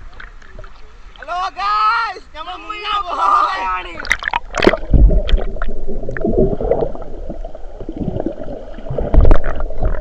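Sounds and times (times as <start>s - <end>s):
underwater gurgling: 3.8s - 10.0s.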